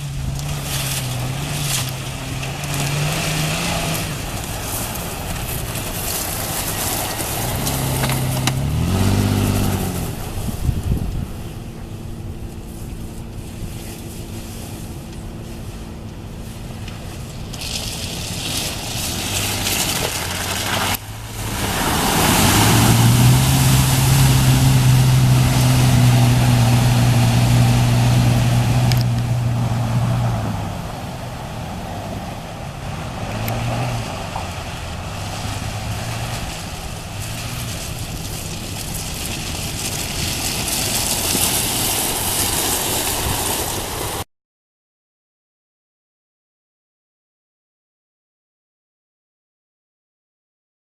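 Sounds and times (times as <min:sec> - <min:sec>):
truck engine running: 0:00.0 - 0:44.2
water splashing: 0:17.3 - 0:44.2.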